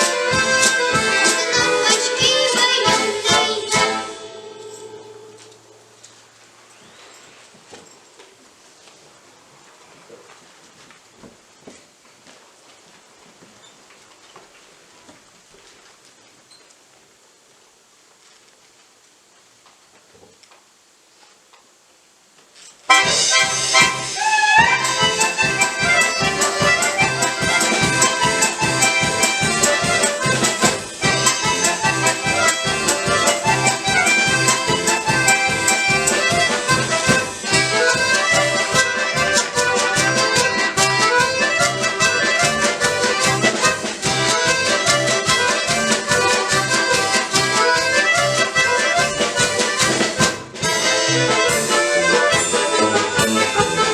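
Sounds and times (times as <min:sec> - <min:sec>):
button accordion ensemble playing: 0:00.0 - 0:05.5, 0:22.9 - 0:53.9.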